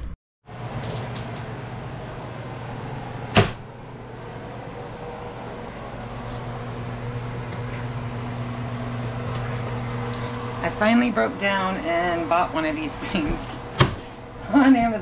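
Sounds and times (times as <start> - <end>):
electric appliance hum: 0.5 - 15.0
sharp knock: 3.3 - 3.6.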